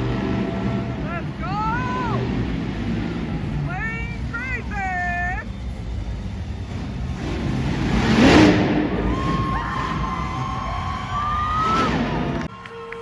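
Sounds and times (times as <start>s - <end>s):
vehicle engine rumbling: 0.0s - 12.7s
crowd cheering: 8.8s - 13.0s.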